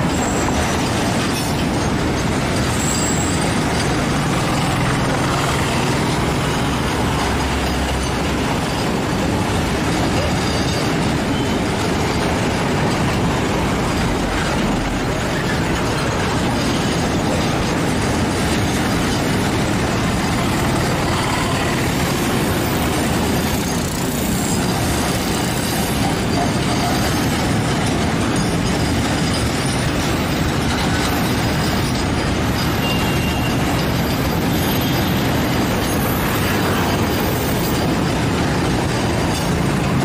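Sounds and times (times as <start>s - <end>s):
faint high wheel squeals: 0.0s - 1.5s, 2.6s - 12.3s, 28.3s - 38.1s
steel wheels rumbling on rails: 0.0s - 40.0s.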